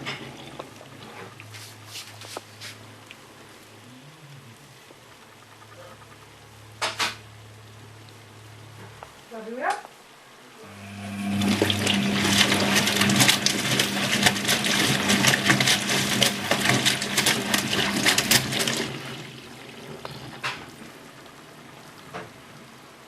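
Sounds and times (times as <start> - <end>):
faint water trickling: 0.0 - 23.0
washing machine electrical hum: 4.7 - 23.0
washing machine water splashing: 10.6 - 23.0.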